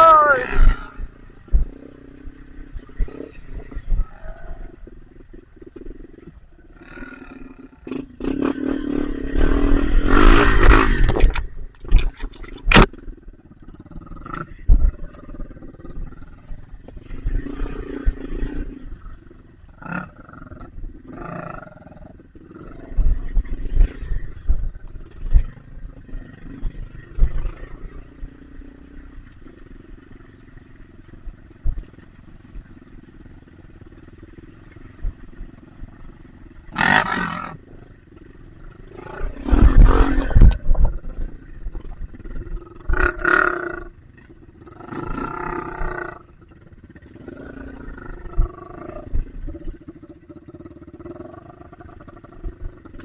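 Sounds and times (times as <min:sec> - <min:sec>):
dirt bike engine revving: 0:00.0 - 0:53.0
thumps on microphone: 0:10.2 - 0:13.0.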